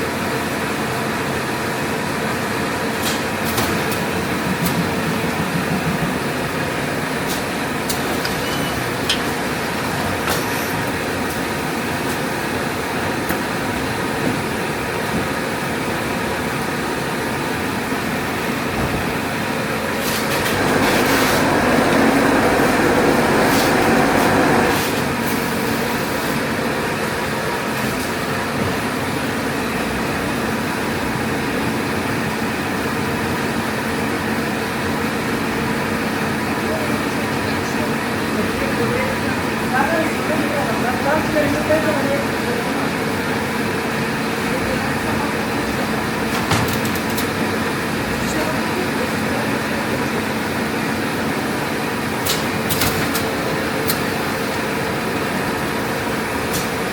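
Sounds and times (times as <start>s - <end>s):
machine running noise: 0.1s - 56.9s
sharp machine clicks: 52.2s - 54.0s.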